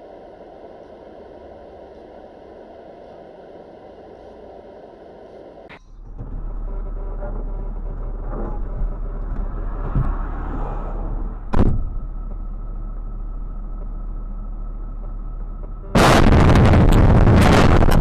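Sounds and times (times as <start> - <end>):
car road and engine noise: 0.0 - 18.0
loud collision bang: 11.5 - 12.0.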